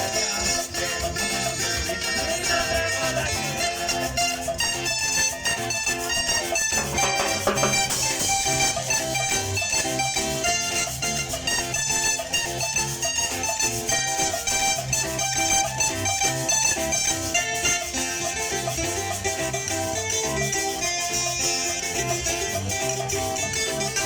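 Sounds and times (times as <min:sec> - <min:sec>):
plucked strings strumming: 0:01.2 - 0:24.0
bass beat: 0:06.6 - 0:13.2.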